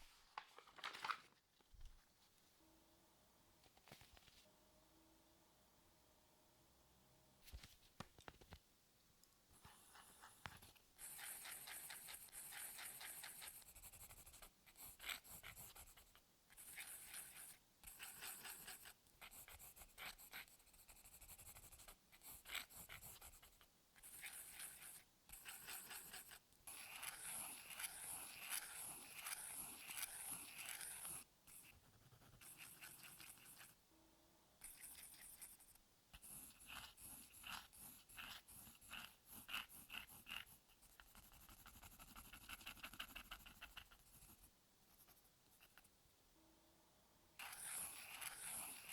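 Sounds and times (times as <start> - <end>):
pencil sketching on paper: 9.6 - 33.8, 34.6 - 45.9, 47.4 - 48.9.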